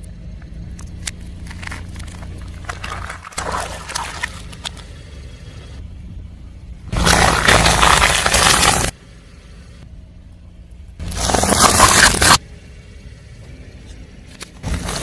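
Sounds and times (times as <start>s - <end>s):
low car engine hum: 0.0s - 15.0s
tyre crushing objects: 1.4s - 4.8s, 6.9s - 9.0s, 11.0s - 12.4s, 14.6s - 15.0s.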